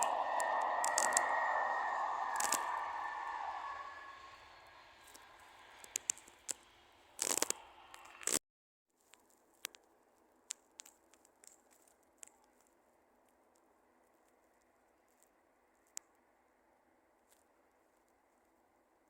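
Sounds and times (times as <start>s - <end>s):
clicks and crackles: 0.0s - 1.3s, 5.0s - 8.4s, 9.0s - 16.2s
hiss: 0.0s - 8.4s
low steady background noise: 8.9s - 19.0s.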